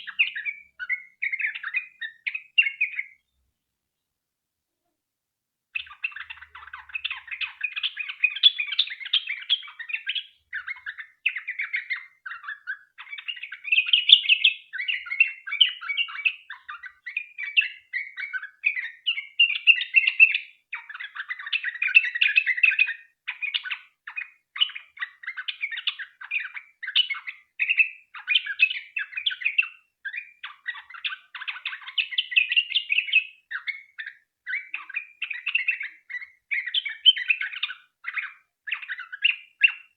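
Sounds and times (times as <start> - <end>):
bird singing fast chirps: 0.0 - 3.4, 5.8 - 39.9.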